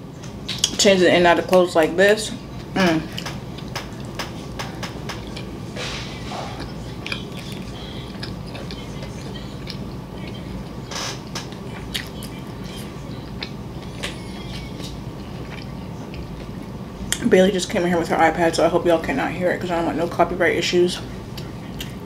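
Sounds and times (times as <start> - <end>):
low hum: 0.0 - 22.0
chewing smacks: 0.2 - 0.8, 2.6 - 17.2, 21.3 - 22.0.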